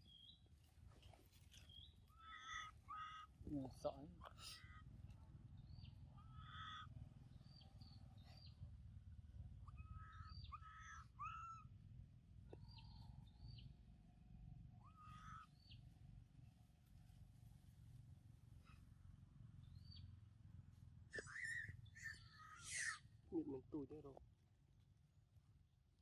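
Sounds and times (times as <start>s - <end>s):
birds chirping: 0.0s - 8.9s, 9.5s - 11.8s, 12.4s - 13.8s, 19.5s - 20.2s, 21.1s - 24.2s
low steady rumble: 0.0s - 26.0s.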